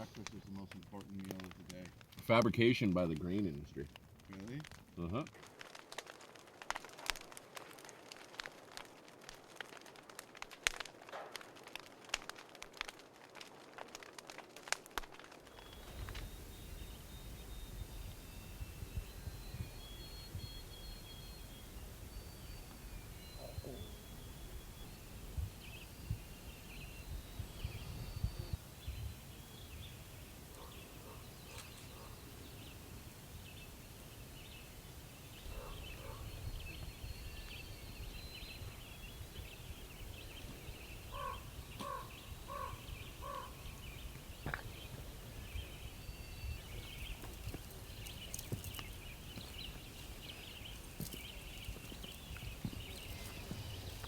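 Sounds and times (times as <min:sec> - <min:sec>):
songbirds singing: 0:15.5 - 0:54.0
lower bird notes: 0:15.6 - 0:54.0.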